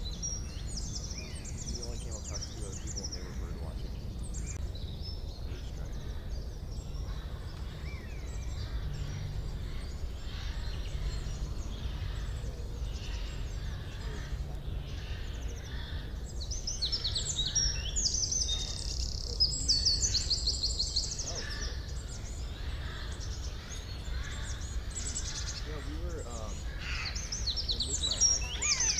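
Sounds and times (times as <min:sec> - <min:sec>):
songbirds singing: 0:00.0 - 0:28.9
rapid high bird trills: 0:21.1 - 0:28.9.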